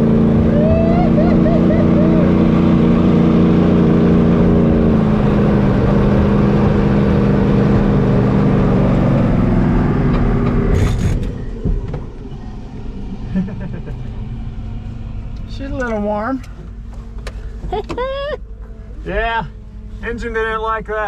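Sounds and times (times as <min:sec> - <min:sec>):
truck engine at full throttle: 0:00.0 - 0:18.0
engine crackle: 0:00.0 - 0:21.0.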